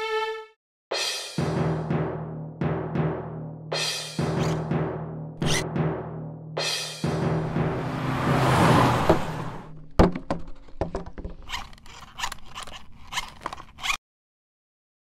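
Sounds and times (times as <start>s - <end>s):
short scraping noises: 4.4s - 4.6s, 5.4s - 5.6s, 11.3s - 14.0s
sharp thunk: 5.4s - 6.0s, 7.0s - 11.3s
rushing swell with low hum: 7.2s - 9.7s
irregular clicks: 10.4s - 14.0s.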